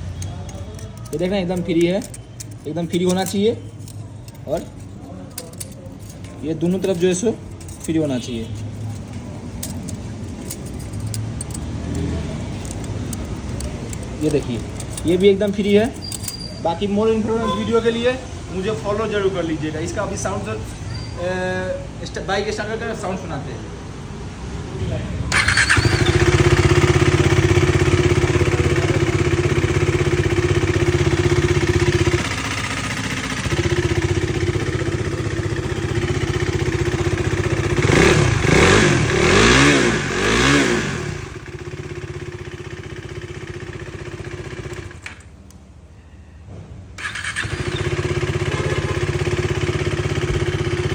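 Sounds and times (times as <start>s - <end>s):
motorcycle engine idling: 0.0s - 16.5s, 25.3s - 45.5s, 47.0s - 50.9s
engine revving: 25.3s - 41.8s, 47.0s - 50.9s.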